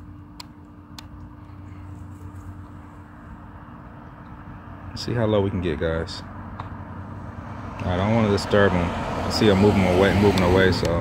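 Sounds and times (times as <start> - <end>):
low outdoor hum: 0.0 - 11.0.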